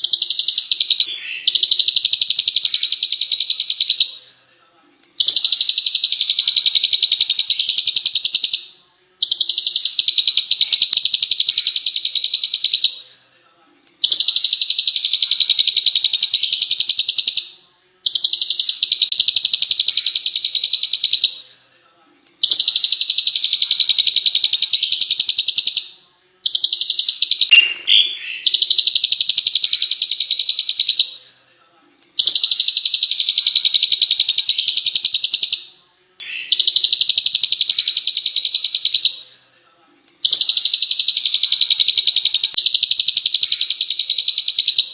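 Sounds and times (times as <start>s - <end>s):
songbird rapid sharp trill: 0.0s - 4.1s, 5.2s - 12.9s, 22.4s - 31.1s, 32.2s - 39.2s.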